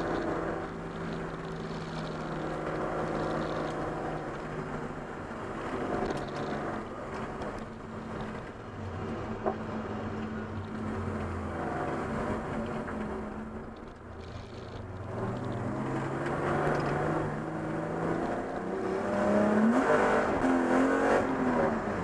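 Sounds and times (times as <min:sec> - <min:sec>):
car engine running hard: 0:00.0 - 0:22.0.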